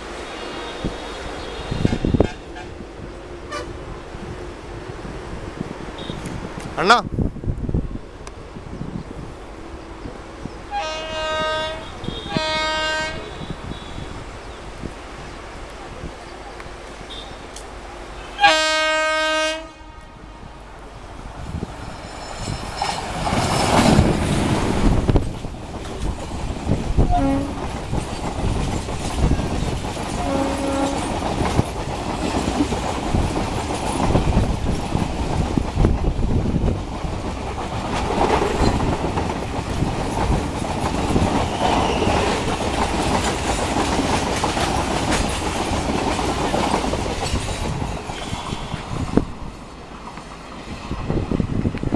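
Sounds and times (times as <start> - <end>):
electric locomotive passing: 0.0 - 51.9
wheels clickety-clack: 22.4 - 49.3.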